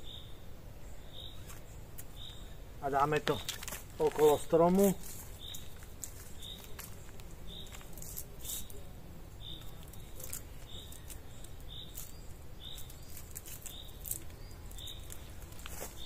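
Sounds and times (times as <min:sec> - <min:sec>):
cord rustling and clicking: 0:03.2 - 0:08.8, 0:09.6 - 0:16.0.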